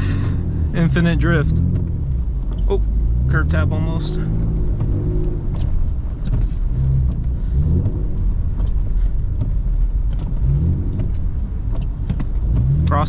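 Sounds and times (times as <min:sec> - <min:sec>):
car engine revving: 0:00.0 - 0:13.0
steady low rumble: 0:00.0 - 0:13.0.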